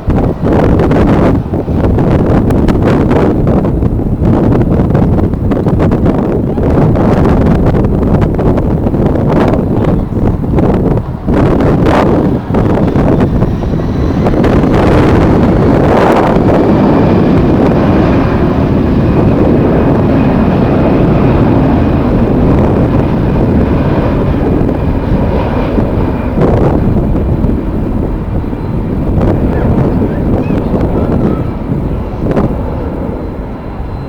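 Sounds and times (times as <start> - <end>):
jet engines rumbling and whining: 0.0 - 34.0
wind buffeting microphone: 0.0 - 34.0.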